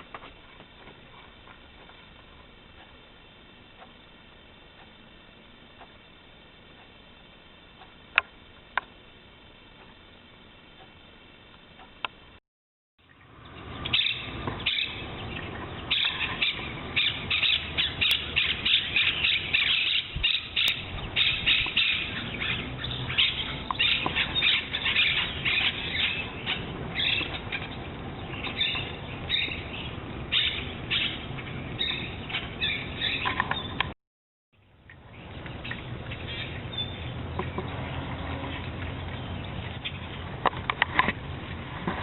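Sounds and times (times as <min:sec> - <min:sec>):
flock of birds calling: 0:13.7 - 0:33.9.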